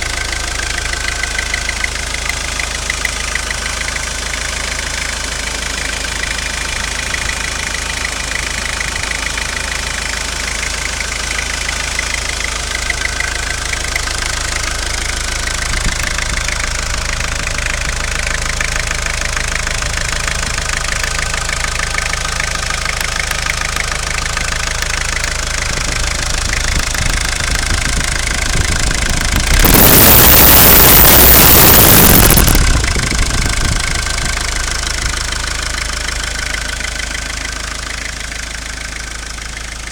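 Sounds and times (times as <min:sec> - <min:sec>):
diesel engine running: 0:00.0 - 0:39.9
loud burst of noise: 0:29.4 - 0:33.9.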